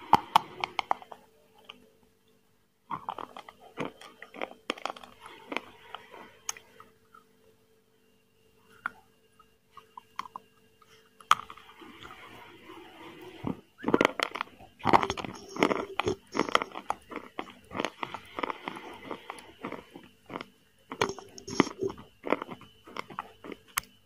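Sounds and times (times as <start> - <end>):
faint steady hum: 0.0 - 24.0
chewing with wet mouth clicks: 2.9 - 7.3, 13.8 - 24.0.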